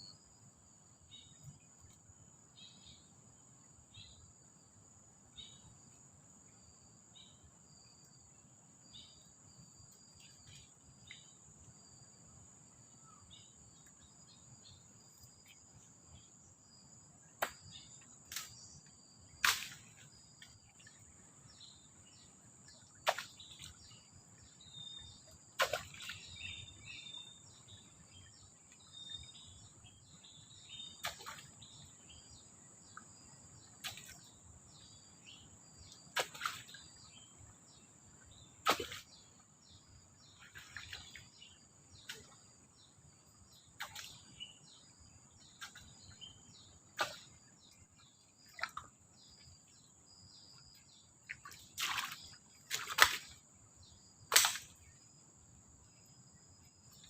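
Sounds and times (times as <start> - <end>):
sharp knock or crack: 19.4 - 19.8, 54.3 - 54.8.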